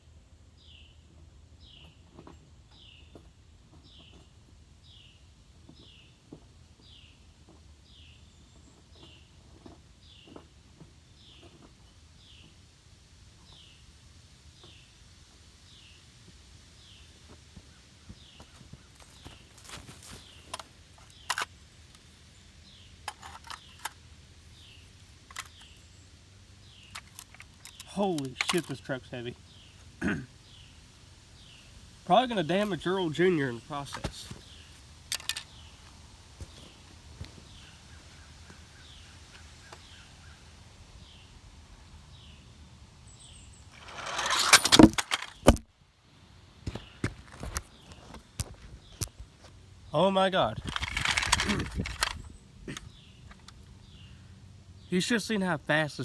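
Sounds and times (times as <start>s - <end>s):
bird chirping: 22.2s - 41.4s
sharp clicks and knocks: 43.8s - 45.7s
toy truck hitting the ground: 43.8s - 45.7s, 50.6s - 52.2s.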